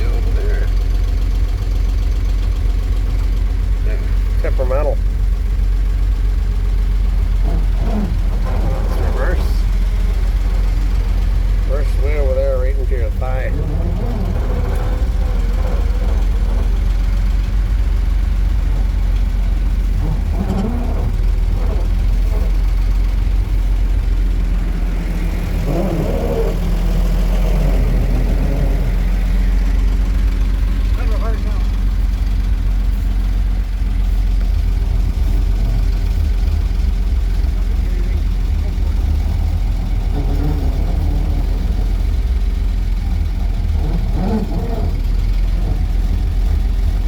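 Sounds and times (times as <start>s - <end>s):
truck engine low drone: 0.0s - 47.0s.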